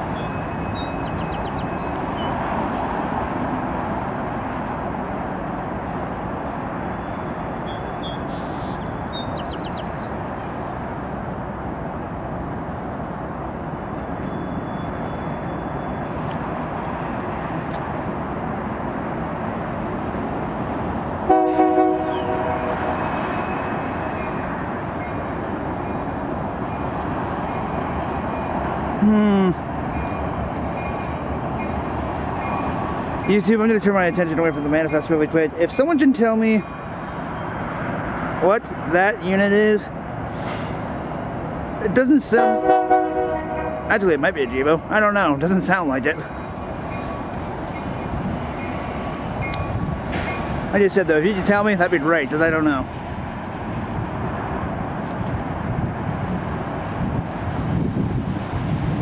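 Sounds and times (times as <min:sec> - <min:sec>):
freight train rolling past: 0:00.0 - 0:59.0
locomotive horn: 0:21.3 - 0:23.4, 0:42.4 - 0:43.9.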